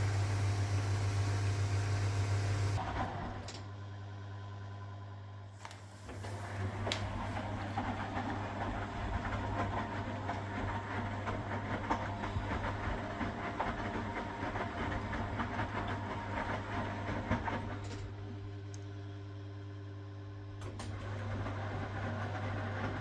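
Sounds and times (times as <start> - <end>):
washing machine motor humming: 0.0 - 23.0
click: 18.7 - 18.9.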